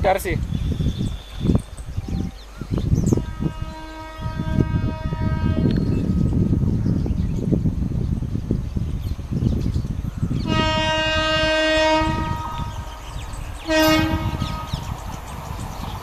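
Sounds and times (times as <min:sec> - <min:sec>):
low rumble of train: 0:00.0 - 0:16.0
locomotive horn blast: 0:03.1 - 0:06.4, 0:10.4 - 0:15.0.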